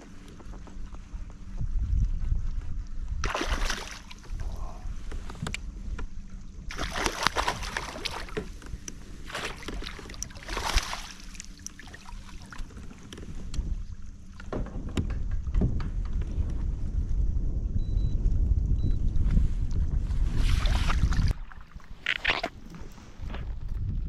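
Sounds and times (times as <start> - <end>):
wind rumble on microphone: 0.0 - 24.0
water splashing around kayak: 3.1 - 14.7, 20.2 - 23.7
gear knocks and clicks: 14.4 - 16.6.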